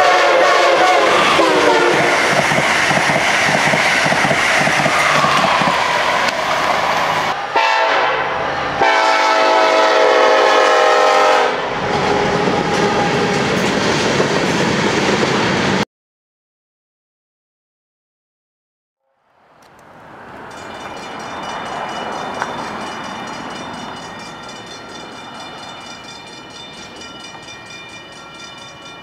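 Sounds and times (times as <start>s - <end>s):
train horn chord: 0.0s - 2.3s, 7.2s - 13.4s
freight train rumbling: 0.0s - 15.8s, 19.7s - 29.0s
train rushing past: 0.0s - 15.8s, 19.7s - 29.0s.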